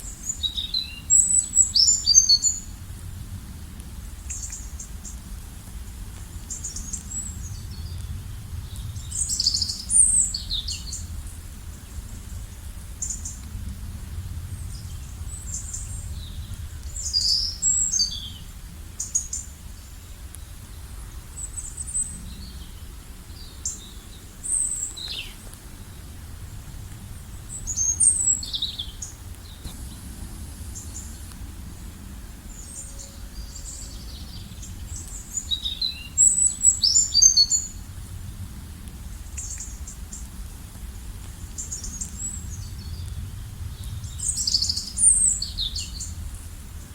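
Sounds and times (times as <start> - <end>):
low background rumble: 1.0 - 46.9.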